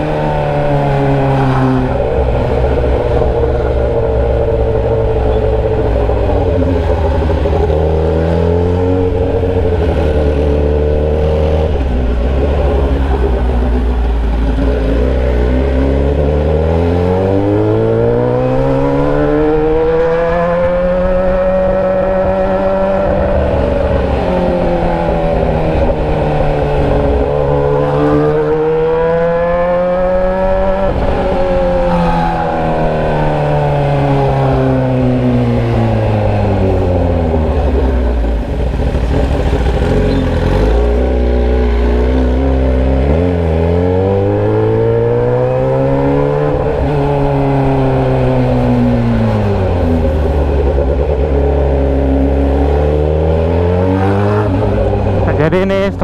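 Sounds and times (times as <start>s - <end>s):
motorcycle engine with open pipe: 0.0s - 21.0s, 30.4s - 44.8s.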